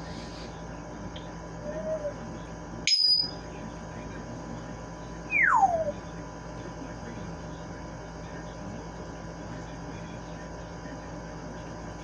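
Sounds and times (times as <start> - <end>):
parrot whistling: 2.9 - 3.4, 5.3 - 6.0.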